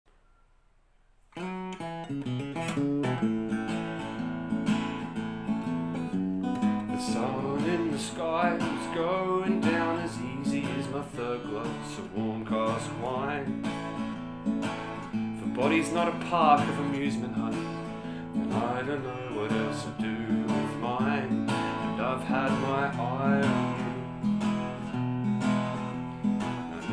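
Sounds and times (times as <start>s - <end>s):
acoustic guitar strumming: 1.3s - 26.9s.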